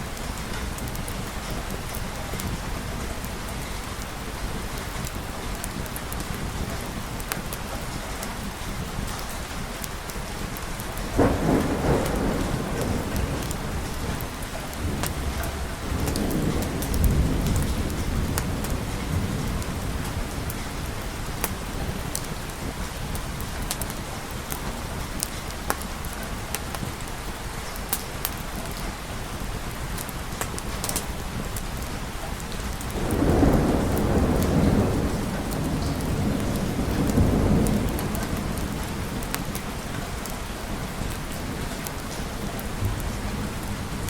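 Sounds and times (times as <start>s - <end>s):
steady rain: 0.0s - 44.0s
deep rumble of thunder: 10.8s - 25.4s, 32.4s - 44.0s
thunderclap: 11.0s - 25.0s, 32.7s - 44.0s.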